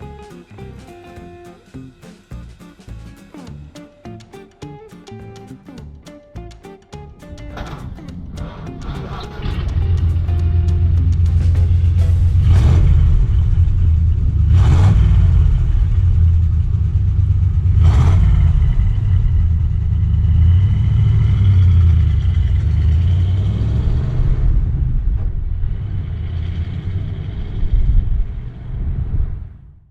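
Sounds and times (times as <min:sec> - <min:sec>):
car engine rumbling: 0:07.6 - 0:29.6.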